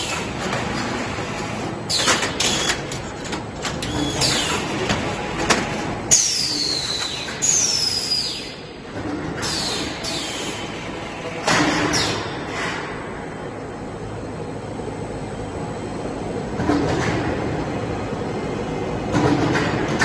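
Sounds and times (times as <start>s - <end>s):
roll forming machine din: 0.0s - 8.0s.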